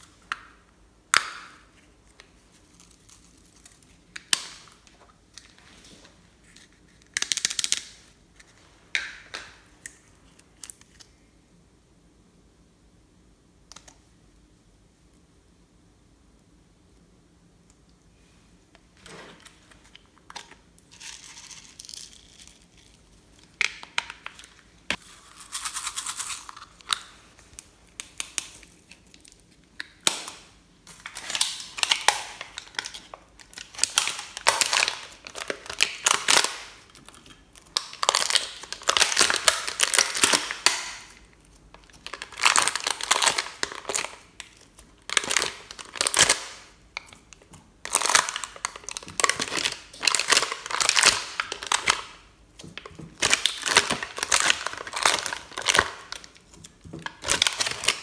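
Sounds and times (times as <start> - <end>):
slime crackling and popping: 37.6 - 58.0.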